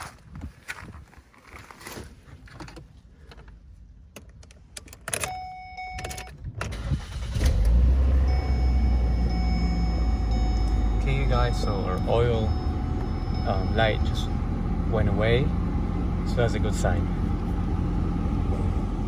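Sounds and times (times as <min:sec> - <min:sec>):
car engine starting and running: 0:06.6 - 0:19.0.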